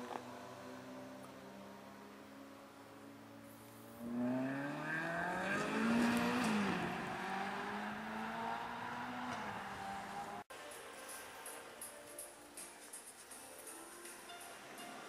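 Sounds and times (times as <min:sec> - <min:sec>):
car engine revving: 0:00.0 - 0:10.5.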